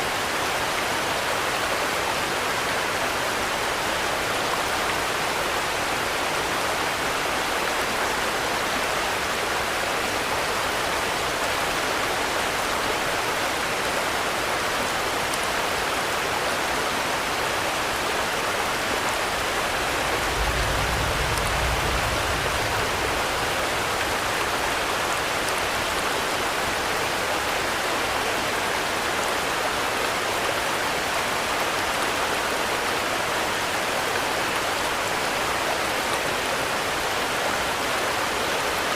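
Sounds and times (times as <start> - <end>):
steady rainfall: 0.0 - 38.9
low rumble: 19.7 - 24.2.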